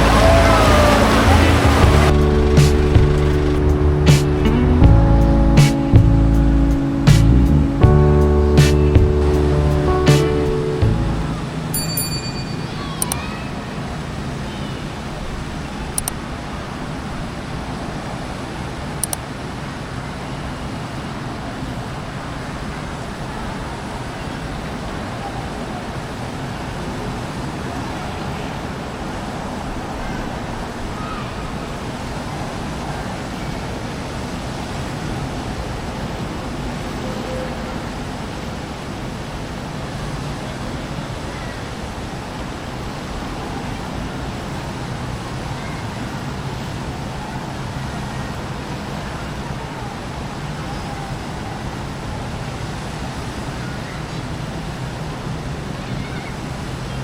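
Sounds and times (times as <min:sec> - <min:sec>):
outdoor rumble and hiss: 0:00.0 - 0:57.0
sharp click: 0:13.0 - 0:13.2, 0:16.0 - 0:16.2, 0:19.0 - 0:19.3.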